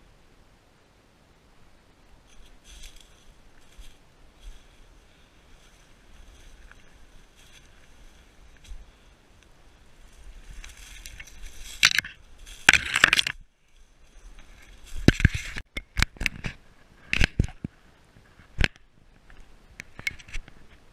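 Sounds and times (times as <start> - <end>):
dry leaves and twigs crunching: 2.2 - 15.7
twigs snapping: 2.3 - 4.6, 10.1 - 13.4.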